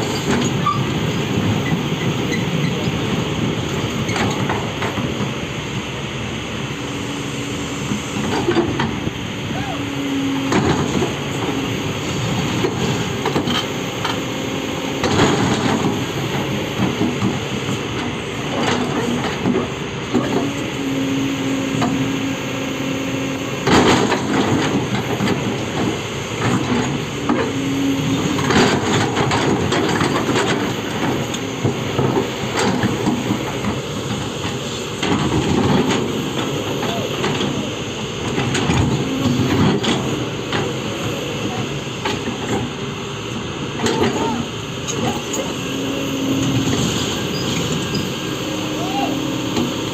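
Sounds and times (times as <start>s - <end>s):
heavy machinery engine running: 0.0s - 49.9s.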